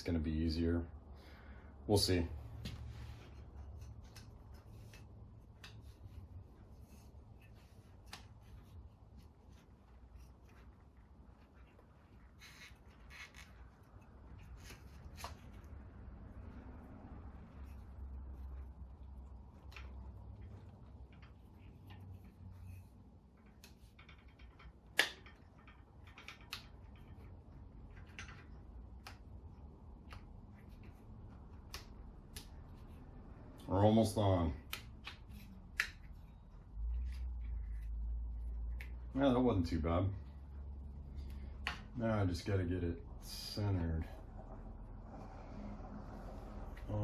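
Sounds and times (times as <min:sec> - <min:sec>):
low steady hum: 0:00.0 - 0:47.0
rubber band rubbing on wheel: 0:02.8 - 0:24.6.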